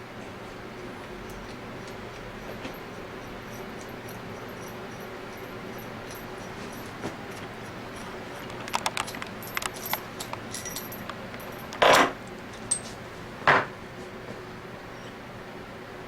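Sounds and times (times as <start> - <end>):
metal parts and tools clinking: 0.8 - 13.0.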